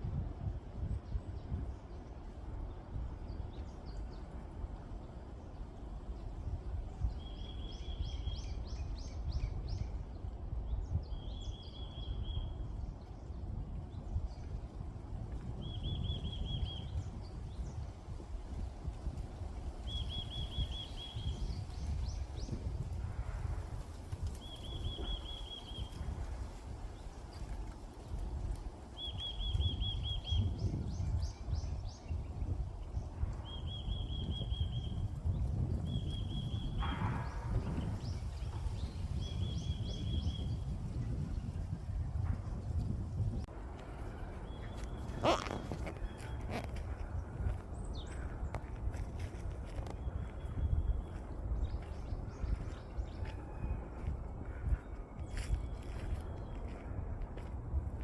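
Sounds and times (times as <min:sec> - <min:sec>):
wind rumbling on microphone: 0:00.0 - 0:58.0
bird dry trill: 0:45.1 - 0:46.6.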